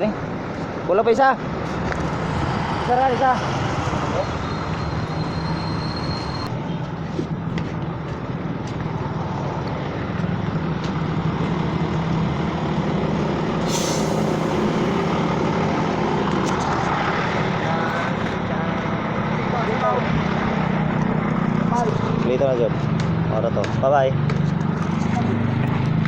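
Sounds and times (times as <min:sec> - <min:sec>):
truck engine idling: 0:00.2 - 0:19.8
air hissing burst: 0:13.6 - 0:15.2.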